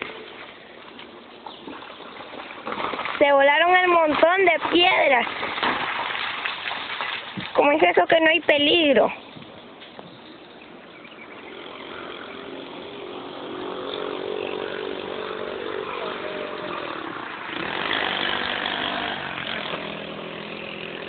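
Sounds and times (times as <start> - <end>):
engine running steadily: 11.0 - 21.0.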